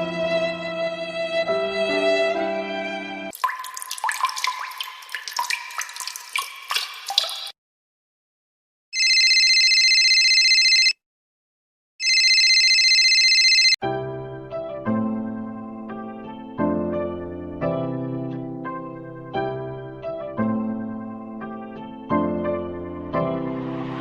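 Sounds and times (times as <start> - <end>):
water dripping: 3.3 - 7.6.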